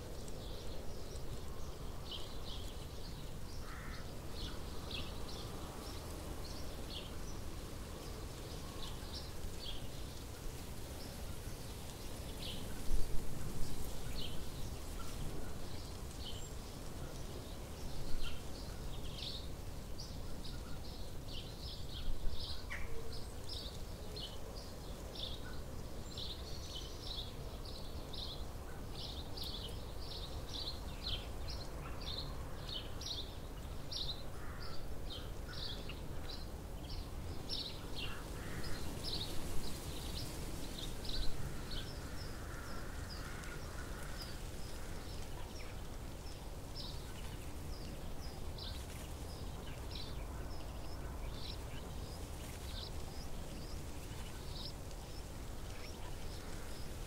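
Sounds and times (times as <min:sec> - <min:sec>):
small birds chirping: 0:13.5 - 0:57.0.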